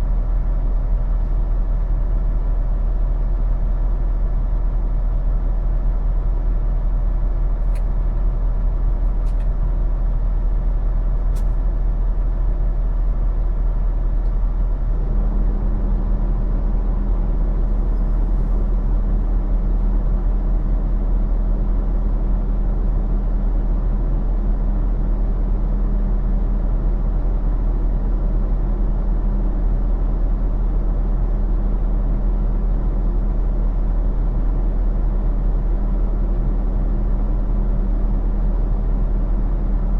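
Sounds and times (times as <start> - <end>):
diesel truck engine humming: 0.0 - 24.6.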